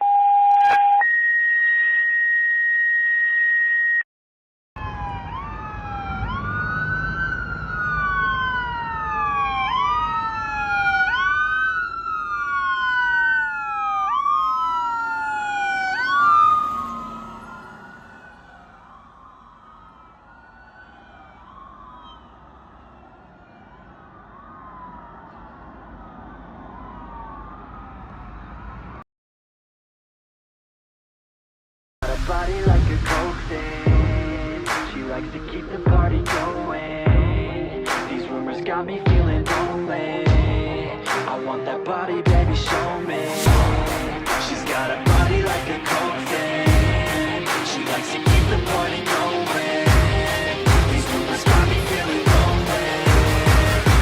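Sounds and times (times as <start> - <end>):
fire engine sirens wailing: 0.0 - 4.0, 4.8 - 29.0, 32.1 - 54.0
truck rumble: 14.7 - 19.5, 32.0 - 41.1, 42.4 - 54.0.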